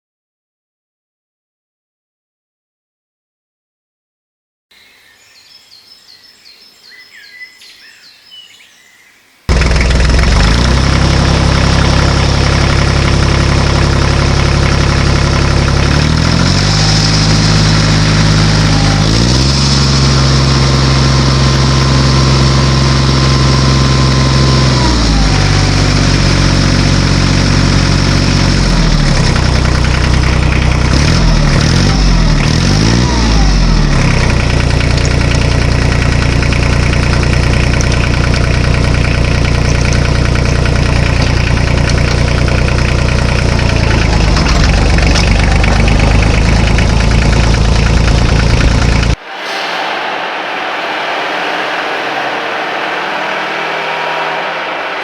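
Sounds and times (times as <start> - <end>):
faint high bird chirps: 4.7 - 9.5
loud engine running: 9.5 - 55.0.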